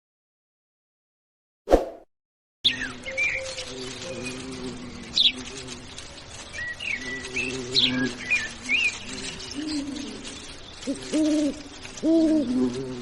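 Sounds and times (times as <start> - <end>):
lovebirds chirping: 2.7 - 13.0.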